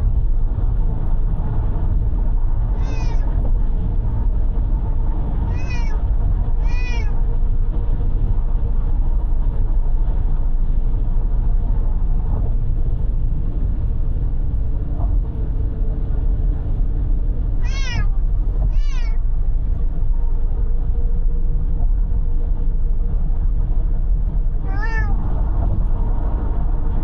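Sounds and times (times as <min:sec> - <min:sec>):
car cabin road and engine rumble: 0:00.0 - 0:27.0
cat meowing: 0:02.8 - 0:03.3, 0:05.5 - 0:06.0, 0:06.6 - 0:07.2, 0:17.6 - 0:19.2, 0:24.6 - 0:25.2.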